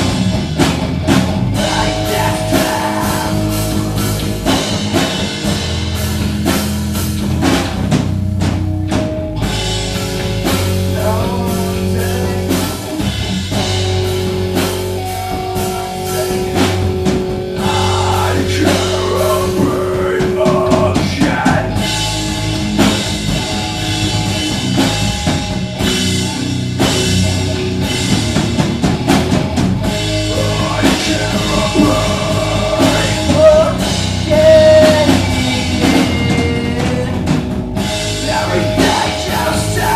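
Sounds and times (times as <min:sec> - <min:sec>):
drum kit beat: 0:00.0 - 0:39.9
rock band playing live: 0:00.0 - 0:39.9
person singing: 0:01.6 - 0:04.6, 0:10.9 - 0:13.1, 0:15.2 - 0:21.9, 0:30.2 - 0:39.9.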